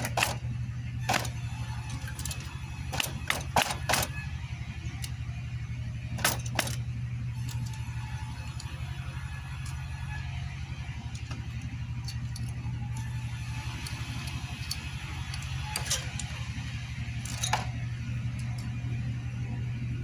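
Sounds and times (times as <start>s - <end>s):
metal tools clinking: 0.0s - 4.2s, 6.1s - 19.5s
low machine hum: 0.0s - 20.0s.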